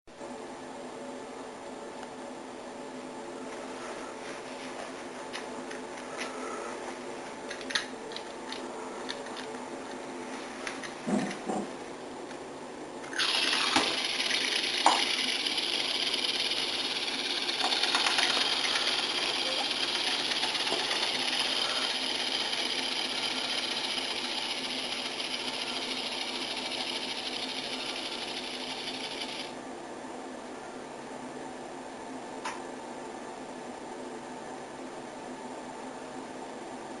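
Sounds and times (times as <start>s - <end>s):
water running: 13.1s - 15.5s.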